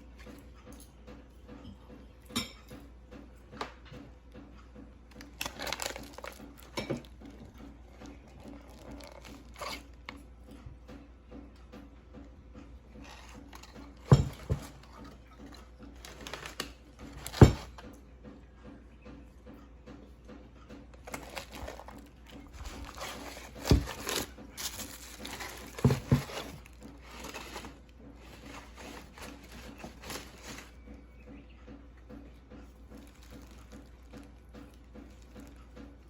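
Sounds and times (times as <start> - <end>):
metal cover knocking and clinking: 13.6 - 16.6, 22.8 - 27.7.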